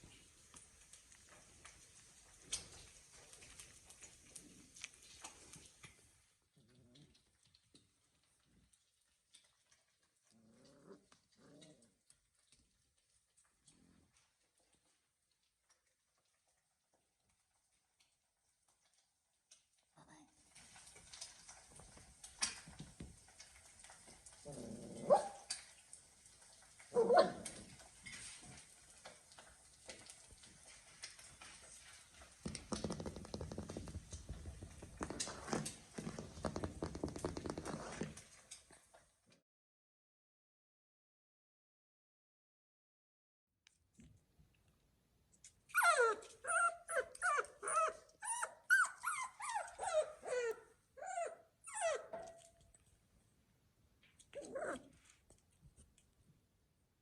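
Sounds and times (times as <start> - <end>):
puppy whimpering and crying: 26.9 - 27.6, 45.7 - 52.6, 54.3 - 55.1.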